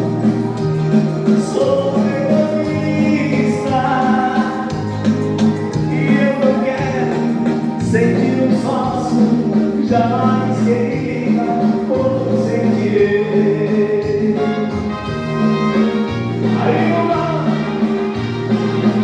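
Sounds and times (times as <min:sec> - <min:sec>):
repeating bass line: 0:00.0 - 0:19.0
held choir-like vocal notes: 0:16.1 - 0:18.4.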